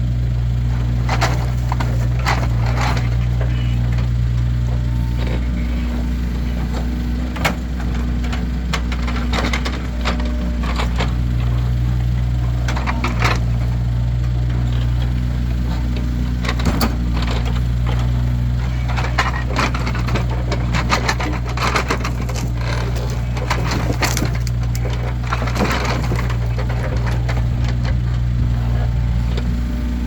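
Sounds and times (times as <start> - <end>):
engine humming: 0.0 - 30.0
wooden logs knocking together: 15.8 - 28.1.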